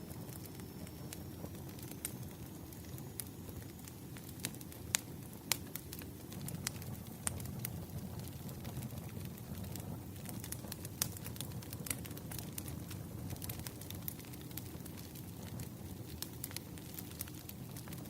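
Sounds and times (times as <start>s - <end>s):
fire low rumble: 0.0s - 18.0s
firewood crackling and popping: 0.0s - 18.0s.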